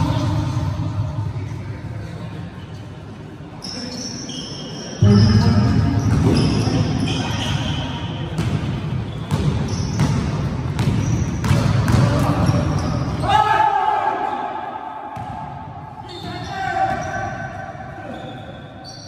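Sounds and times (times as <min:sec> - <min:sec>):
shoe squeaks: 0:03.6 - 0:08.4, 0:09.0 - 0:10.2, 0:10.8 - 0:11.5, 0:12.4 - 0:13.3, 0:16.0 - 0:17.4, 0:18.0 - 0:19.0.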